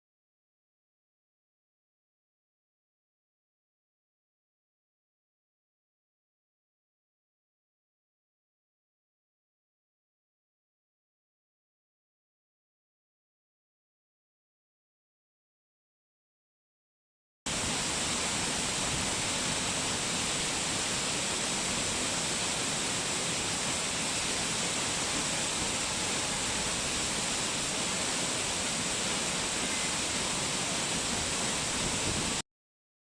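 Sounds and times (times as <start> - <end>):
waterfall rushing: 17.5 - 32.4.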